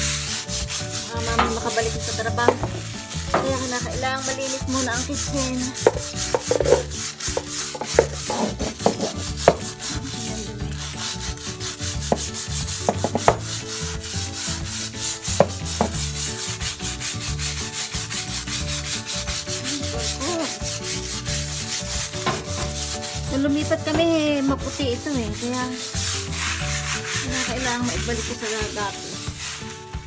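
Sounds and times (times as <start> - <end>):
scrub brush scrubbing wet tiles: 0.0 - 30.0
brush knocking on floor: 1.2 - 4.6, 5.6 - 9.9, 12.0 - 13.6, 15.3 - 16.1, 22.2 - 22.9.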